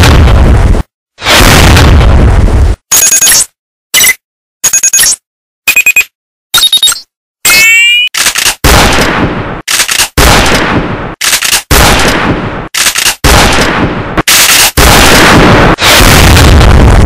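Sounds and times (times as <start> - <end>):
heavy gunshots with echo: 0.0 - 2.4, 8.6 - 9.6, 10.2 - 17.0
sharp cracks: 8.2 - 17.0.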